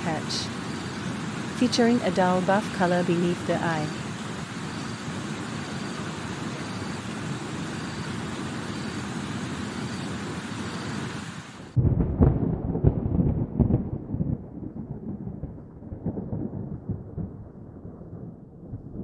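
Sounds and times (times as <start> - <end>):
rain hiss: 0.0 - 11.8
rumbling thunder with cracks: 11.8 - 19.0.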